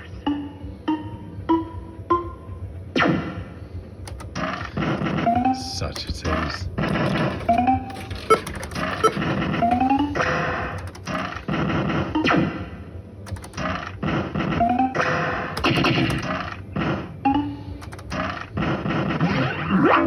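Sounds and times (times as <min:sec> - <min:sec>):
electronic game music: 0:00.0 - 0:16.3
machine clicks and clunks: 0:04.0 - 0:11.5, 0:13.3 - 0:13.8, 0:15.6 - 0:16.3, 0:17.8 - 0:18.4.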